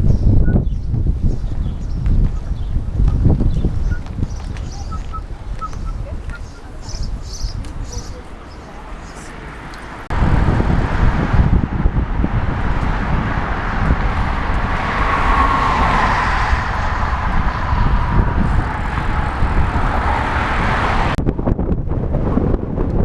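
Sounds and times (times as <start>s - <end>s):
wind rumbling on microphone: 0.0s - 23.0s
car passing: 4.8s - 21.2s.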